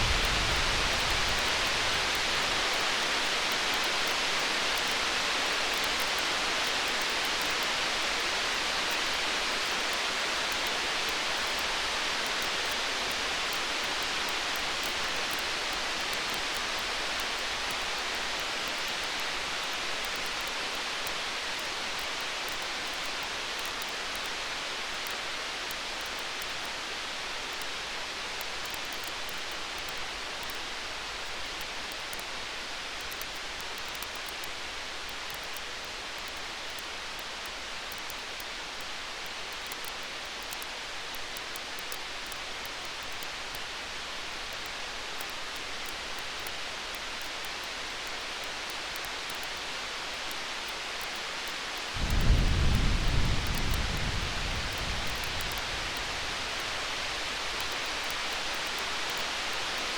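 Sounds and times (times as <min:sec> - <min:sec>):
wood fire crackling: 0:00.0 - 0:04.9, 0:51.8 - 0:59.2
storm rain hissing: 0:00.0 - 0:05.8, 0:51.8 - 0:59.9.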